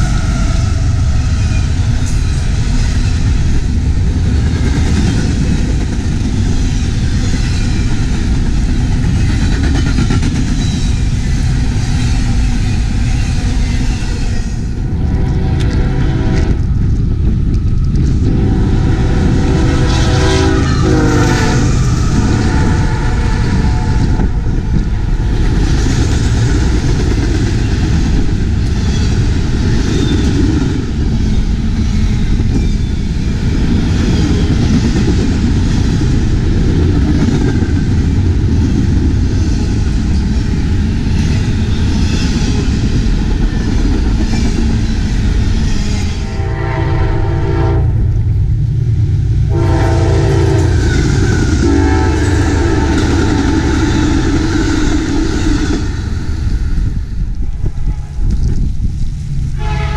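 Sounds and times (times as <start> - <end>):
freight train wheels clattering: 0.0 - 46.5
train air horn blasts: 14.9 - 16.7, 18.2 - 24.3, 46.2 - 48.2, 49.5 - 53.6, 57.4 - 58.4, 59.6 - 59.9.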